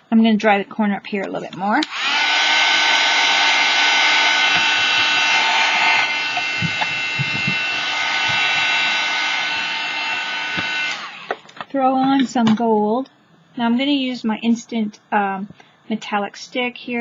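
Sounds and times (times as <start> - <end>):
heat tool blowing air: 1.8 - 11.4.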